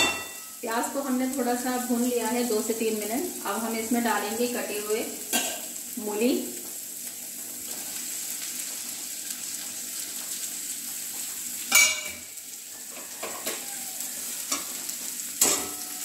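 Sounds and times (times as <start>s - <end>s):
sharp metal clank: 0.0s - 0.5s
oil sizzling in a pan: 0.0s - 16.0s.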